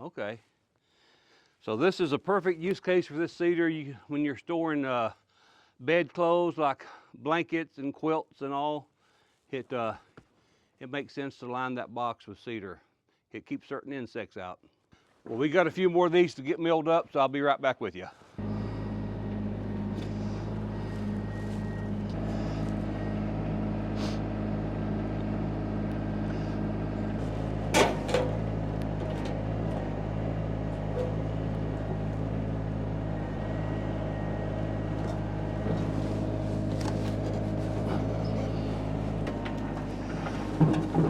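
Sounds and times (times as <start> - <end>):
sawmill engine running: 18.4 - 41.0.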